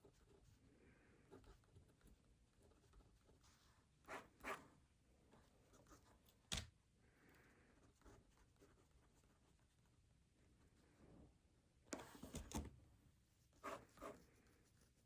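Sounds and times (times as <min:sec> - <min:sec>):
pen strokes on paper: 0:13.4 - 0:15.0.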